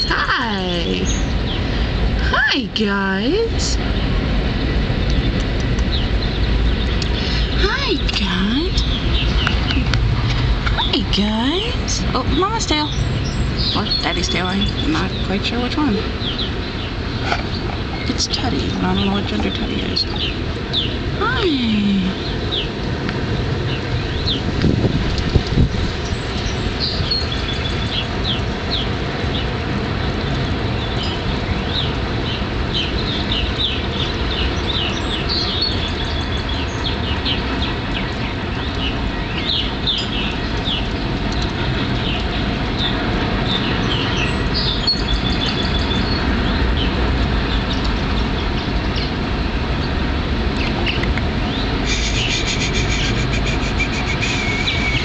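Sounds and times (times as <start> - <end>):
steady low rumble: 0.0 - 55.0
high bird chirps: 51.9 - 55.0.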